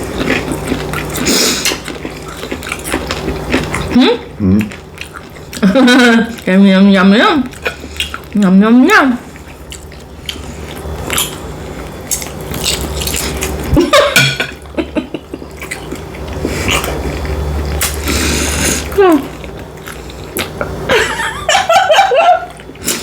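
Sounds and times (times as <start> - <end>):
chewing and biting food: 0.0 - 6.5, 9.2 - 13.8, 15.3 - 20.8
person humming: 4.0 - 4.7.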